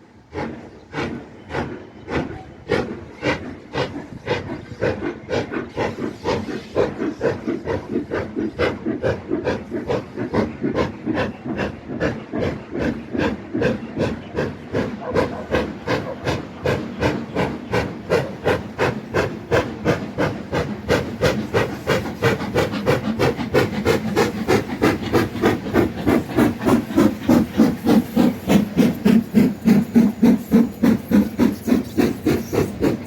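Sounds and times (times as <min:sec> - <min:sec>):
steam hiss: 0:00.0 - 0:33.0
steam locomotive chuffing: 0:00.0 - 0:33.0.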